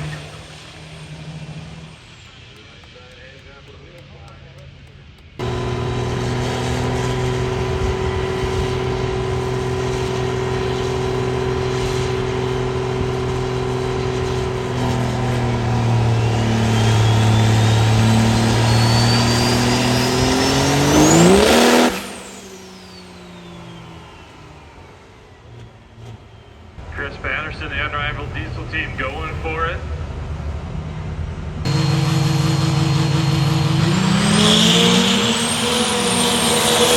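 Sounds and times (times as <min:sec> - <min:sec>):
diesel truck engine revving: 0:00.0 - 0:36.9
turbo whistle: 0:15.8 - 0:24.9.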